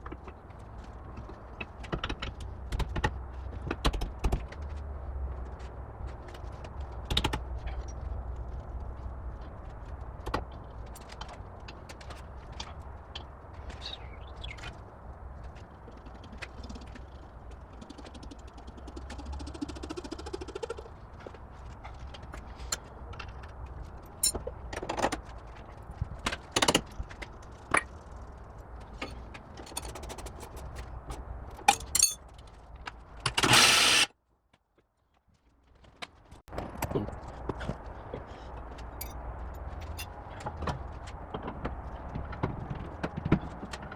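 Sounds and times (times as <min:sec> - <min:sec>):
metal tools clinking: 0:24.1 - 0:24.5, 0:29.0 - 0:30.8, 0:31.6 - 0:32.2
loud burst of noise: 0:33.4 - 0:34.1.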